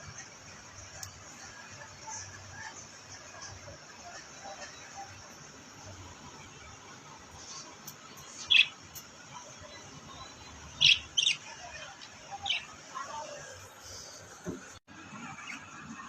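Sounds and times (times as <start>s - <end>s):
parrot chirping: 8.3s - 8.8s, 10.7s - 11.7s, 12.3s - 12.8s.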